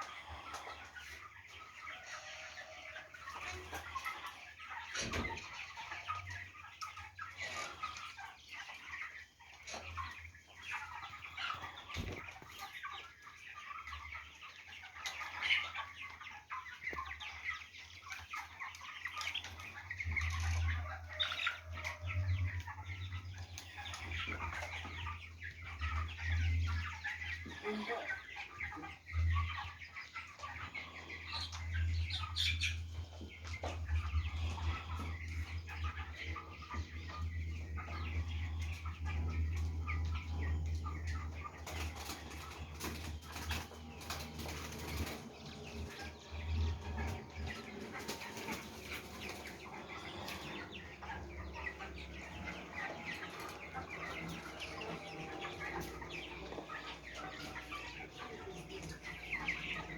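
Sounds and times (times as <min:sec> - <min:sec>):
chickens chirping and clucking: 0:00.0 - 0:59.9
wings flapping and scuffling: 0:10.8 - 0:13.0, 0:41.1 - 0:51.0
low steady hum: 0:28.6 - 0:59.9.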